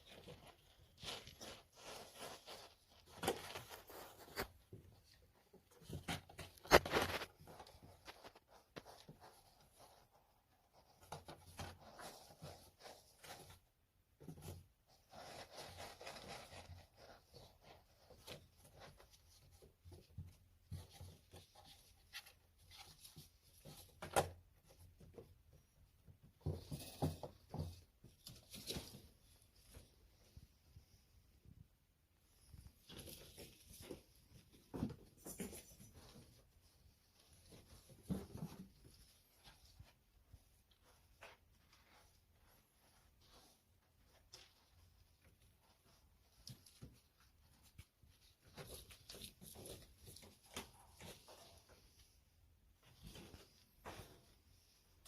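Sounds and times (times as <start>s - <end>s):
light taps and scratches: 0.0s - 31.1s
kittens playing: 0.0s - 55.0s.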